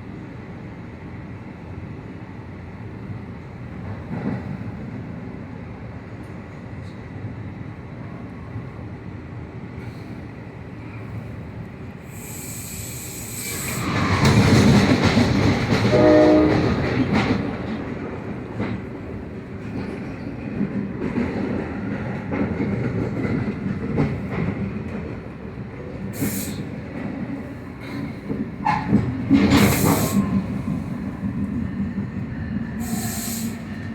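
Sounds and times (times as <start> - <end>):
train rumbling past: 0.0 - 33.9
train horn blast: 15.9 - 16.9.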